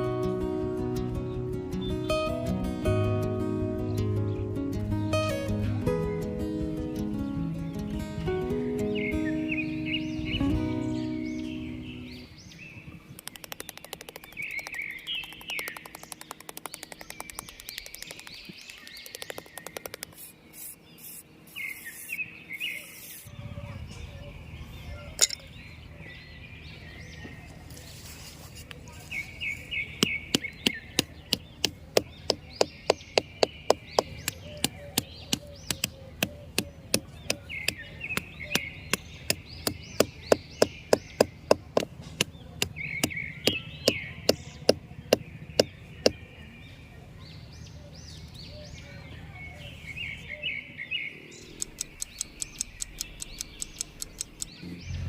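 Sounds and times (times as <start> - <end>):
birds chirping: 0.0 - 55.0
sharp knocks on wood: 30.0 - 46.2.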